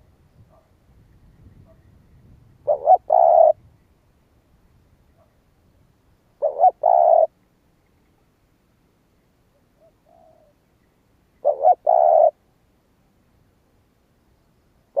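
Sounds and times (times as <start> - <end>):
dove cooing: 2.6 - 3.6, 6.4 - 7.4, 9.8 - 10.6, 11.4 - 12.4.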